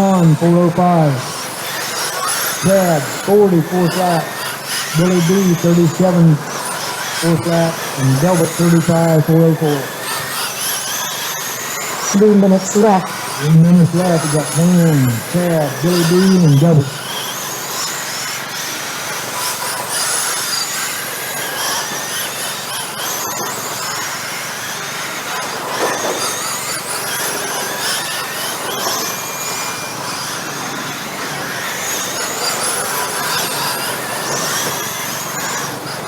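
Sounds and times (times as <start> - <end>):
tyres squealing: 0.0 - 18.2
electric motor whines: 0.0 - 36.0.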